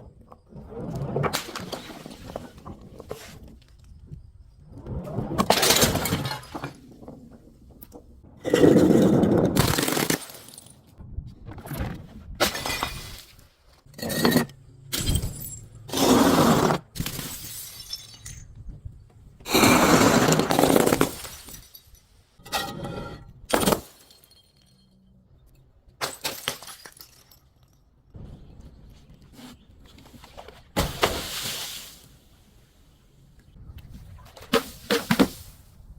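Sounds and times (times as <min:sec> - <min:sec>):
glass bottles crushing and breaking: 0:05.4 - 0:06.9, 0:08.5 - 0:10.9, 0:12.4 - 0:16.1, 0:17.0 - 0:18.6, 0:19.5 - 0:22.9, 0:23.5 - 0:25.1, 0:26.0 - 0:27.9.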